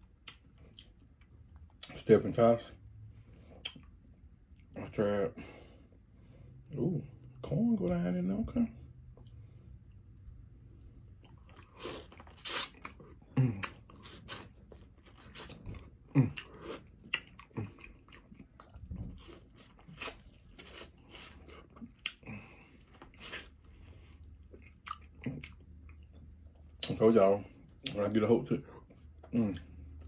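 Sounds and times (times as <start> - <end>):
chewing corn on the cob: 11.0 - 30.0.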